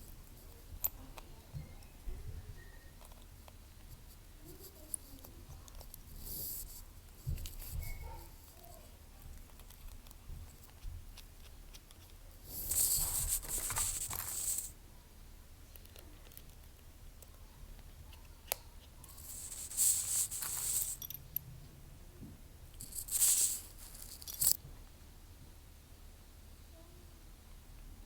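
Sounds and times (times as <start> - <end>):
clicks of tools and parts: 22.8 - 24.6.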